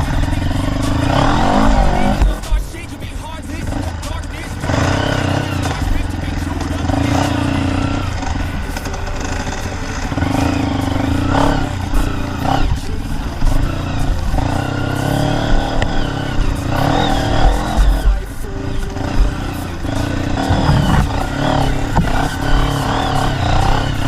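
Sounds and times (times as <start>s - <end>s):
heavy low thumps: 0.0s - 2.7s, 10.4s - 23.9s
dirt bike engine revving: 0.0s - 24.0s.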